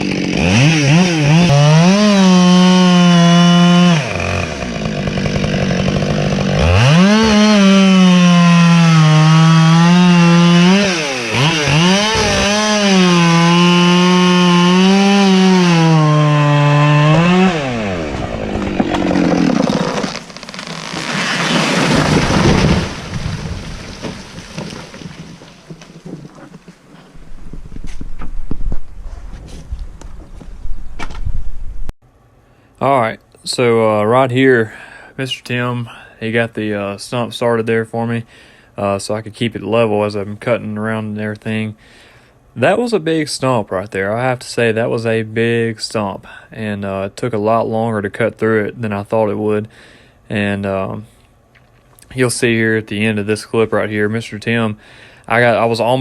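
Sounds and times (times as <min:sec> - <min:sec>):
chainsaw cutting wood: 0:00.0 - 0:26.9.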